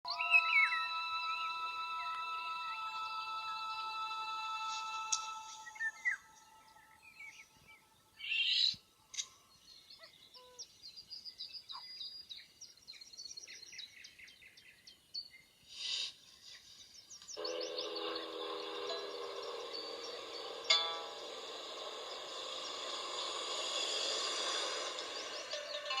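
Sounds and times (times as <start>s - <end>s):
birds chirping: 0.0s - 15.6s, 16.2s - 26.0s
sustained musical tones: 0.1s - 7.7s, 17.4s - 26.0s
bird trill: 0.1s - 8.8s, 17.3s - 26.0s
short hissy bursts: 17.8s - 25.9s.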